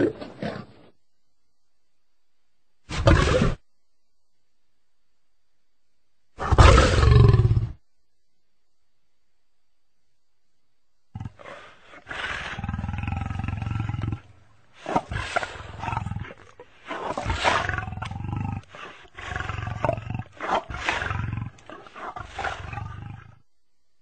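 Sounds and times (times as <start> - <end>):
lion roaring: 2.9 - 3.6, 6.4 - 7.8, 11.1 - 23.4.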